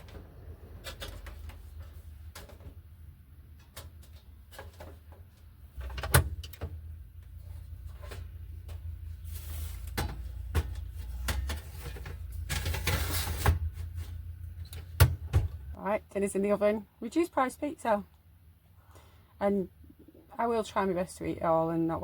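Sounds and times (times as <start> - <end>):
kitchen items clattering: 0.0 - 6.4, 7.6 - 15.7
low steady hum: 0.0 - 22.0.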